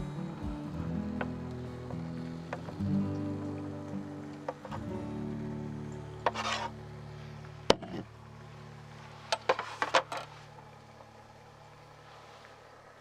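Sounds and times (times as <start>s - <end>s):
background music: 0.0s - 7.8s
cooking gear scraping: 6.2s - 6.8s, 9.0s - 10.5s.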